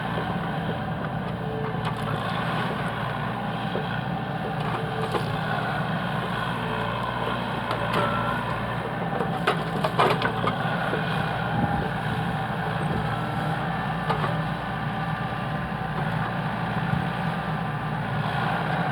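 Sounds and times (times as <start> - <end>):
heavy machine engine running: 0.0 - 18.9
wood cracking and knocking: 9.2 - 10.7.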